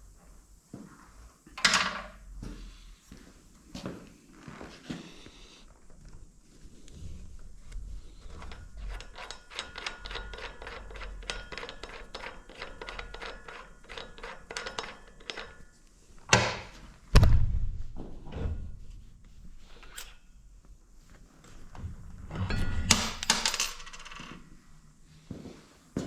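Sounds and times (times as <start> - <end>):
loud ringing thunks: 22.3 - 23.4.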